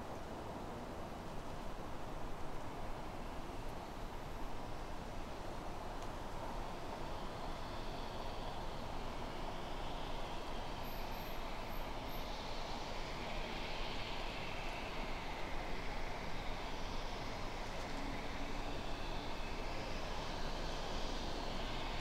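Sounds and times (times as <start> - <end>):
distant train running: 4.9 - 22.0.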